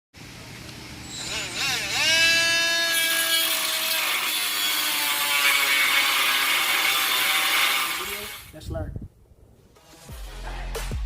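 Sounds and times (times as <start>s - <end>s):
die grinder whining: 1.0s - 8.5s.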